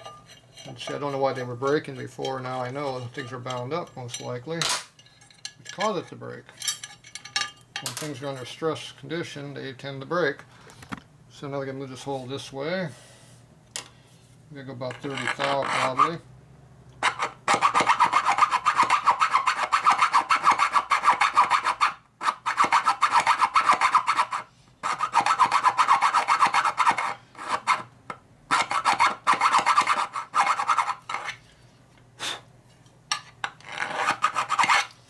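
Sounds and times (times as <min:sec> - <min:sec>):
hand file rasping on metal: 0:14.9 - 0:16.2, 0:17.0 - 0:27.9, 0:28.5 - 0:31.4, 0:33.6 - 0:35.0.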